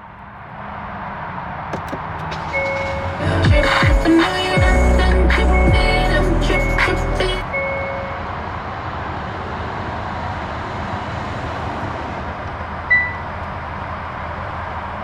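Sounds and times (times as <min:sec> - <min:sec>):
car engine idling: 0:01.7 - 0:10.3.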